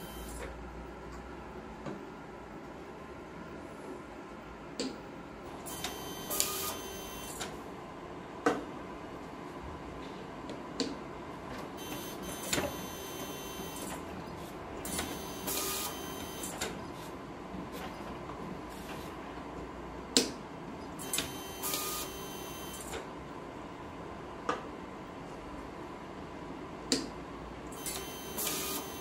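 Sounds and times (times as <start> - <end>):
label printer whirring: 0.0 - 0.5, 5.5 - 7.6, 11.8 - 19.3, 21.0 - 23.1, 27.7 - 29.0
printer sharp clicks: 21.0 - 21.9.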